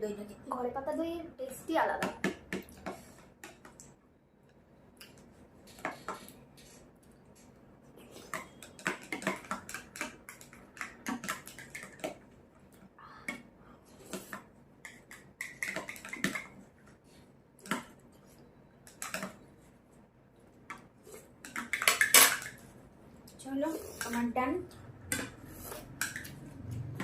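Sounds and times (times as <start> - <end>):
tableware clinking and scraping: 21.4 - 22.6, 25.1 - 26.4.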